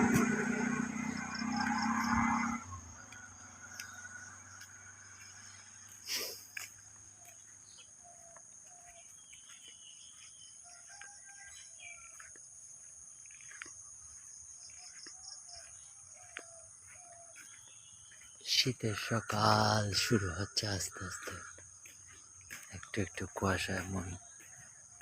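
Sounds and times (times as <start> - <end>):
high-pitched insect drone: 0.0 - 6.8
faint bird calls: 3.2 - 12.3, 13.3 - 25.0.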